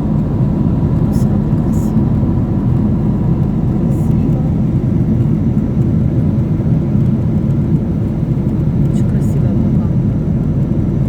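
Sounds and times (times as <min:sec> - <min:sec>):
airliner cabin noise: 0:00.0 - 0:11.0.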